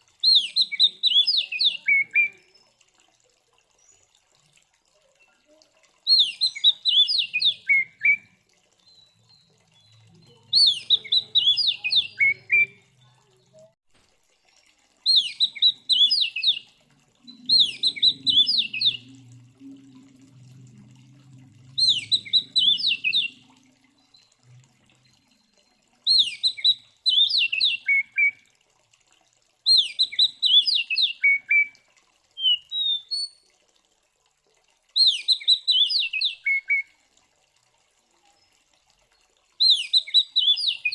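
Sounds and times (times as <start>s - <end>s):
bird singing: 8.8s - 12.9s, 15.1s - 19.5s, 21.8s - 24.4s.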